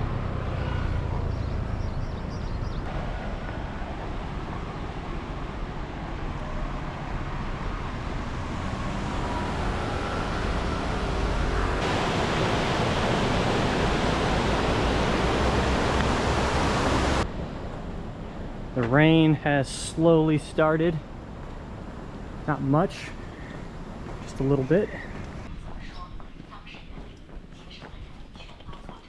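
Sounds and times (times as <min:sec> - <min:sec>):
steady rushing noise: 0:02.9 - 0:25.6.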